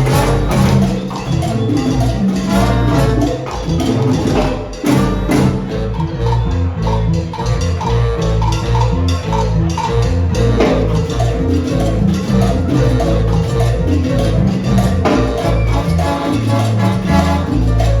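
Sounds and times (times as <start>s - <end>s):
hand percussion: 0.0s - 18.0s
salsa band playing: 0.0s - 18.0s.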